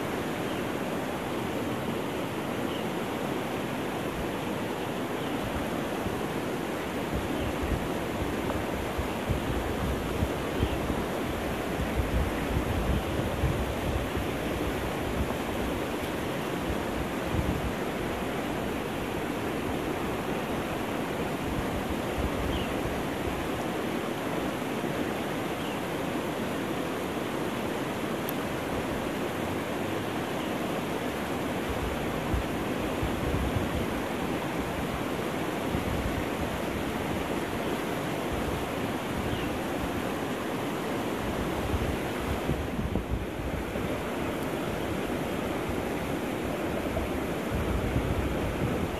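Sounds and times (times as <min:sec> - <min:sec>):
river water rushing: 0:00.0 - 0:48.9
wind buffeting microphone: 0:07.0 - 0:23.5, 0:31.6 - 0:40.4, 0:41.0 - 0:48.9.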